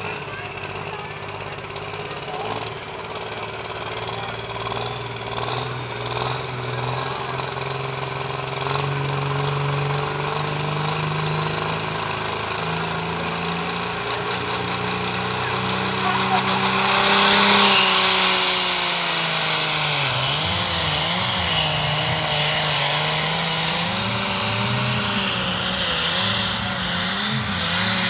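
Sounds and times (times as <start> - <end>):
tractor engine under throttle: 0.0 - 28.0.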